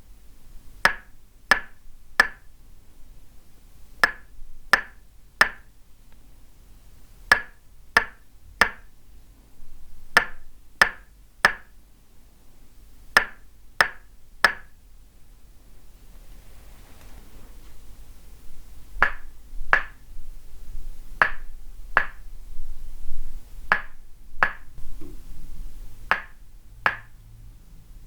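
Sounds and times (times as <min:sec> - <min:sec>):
wooden mallet knocking wooden peg: 0:00.8 - 0:02.5, 0:04.0 - 0:05.7, 0:07.3 - 0:08.9, 0:10.2 - 0:11.7, 0:13.2 - 0:14.7, 0:19.0 - 0:20.0, 0:21.2 - 0:22.2, 0:23.7 - 0:25.2, 0:26.1 - 0:27.2.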